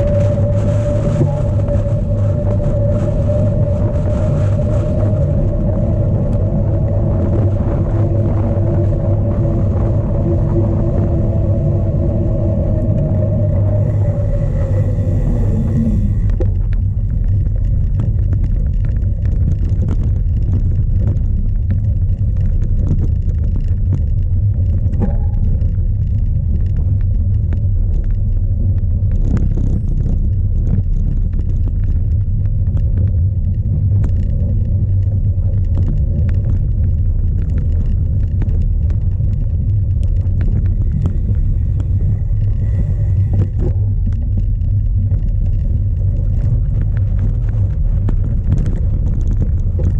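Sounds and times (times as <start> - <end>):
wind buffeting microphone: 0.0 - 49.9
bike clicks and rattles: 12.8 - 49.9.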